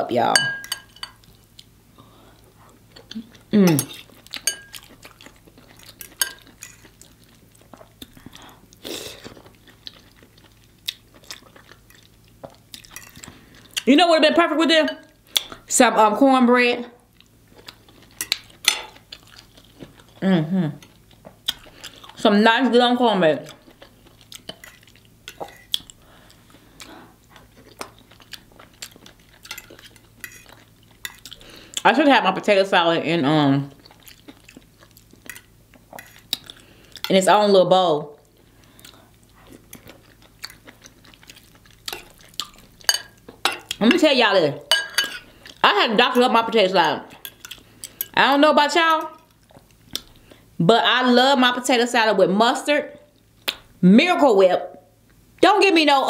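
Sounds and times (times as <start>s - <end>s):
wet chewing: 2.9s - 13.9s, 23.5s - 31.8s, 33.8s - 37.1s, 38.6s - 43.8s
person chewing with wet mouth clicks: 36.3s - 37.1s, 38.8s - 42.7s, 49.5s - 50.2s.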